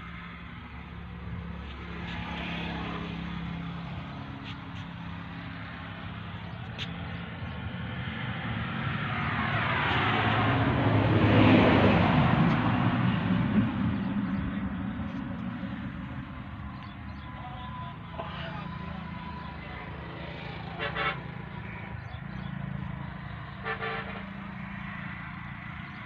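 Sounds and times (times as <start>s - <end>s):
motor vehicle passing by: 0.0s - 17.6s
low engine hum: 0.0s - 26.0s.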